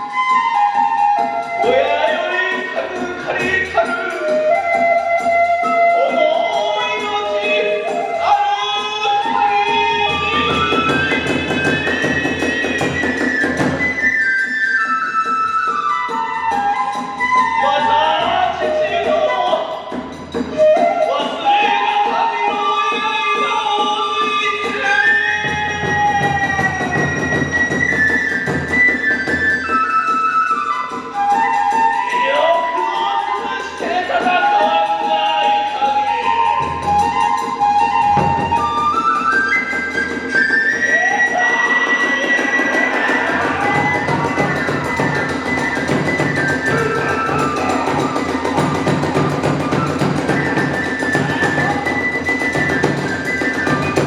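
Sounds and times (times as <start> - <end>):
bamboo flute sliding notes: 0.0 - 54.0
taiko drumming: 2.8 - 14.4, 24.5 - 32.1, 33.2 - 54.0
fast drum strokes: 41.0 - 54.0.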